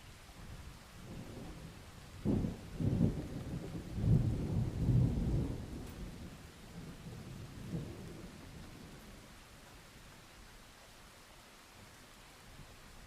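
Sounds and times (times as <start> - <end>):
steady rain: 0.0 - 13.0
thunder rolling: 1.1 - 8.5.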